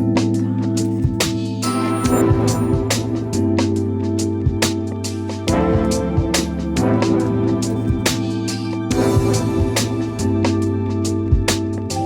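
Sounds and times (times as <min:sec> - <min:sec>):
steady electronic beat: 0:00.0 - 0:12.0
sustained synth chords: 0:00.0 - 0:12.0
bright high shimmer: 0:01.6 - 0:03.6.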